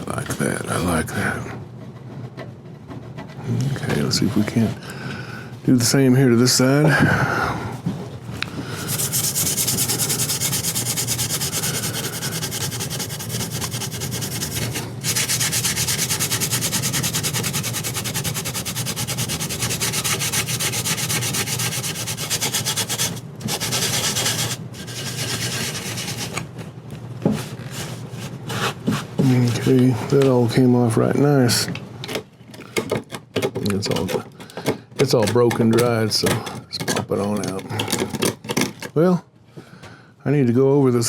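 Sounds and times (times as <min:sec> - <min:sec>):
scrubbing wooden chair: 0:08.8 - 0:26.4.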